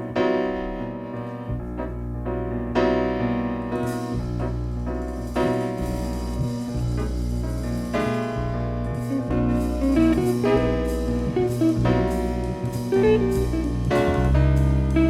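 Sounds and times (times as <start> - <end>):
piano chords: 0.0 - 15.0
drum kit playing: 3.8 - 15.0
walking double bass: 4.1 - 15.0.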